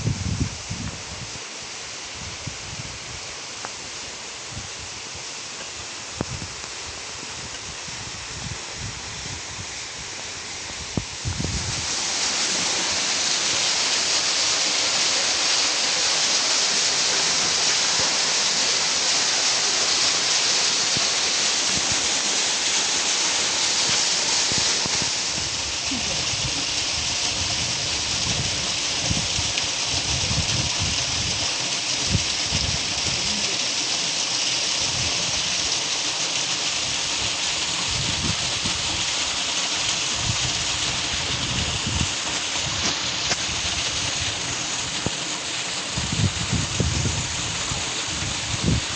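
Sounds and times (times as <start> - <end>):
outdoor rushing hiss: 0.0 - 48.9
wind buffeting microphone: 7.3 - 13.1, 23.8 - 33.3, 40.1 - 45.2, 45.9 - 48.9.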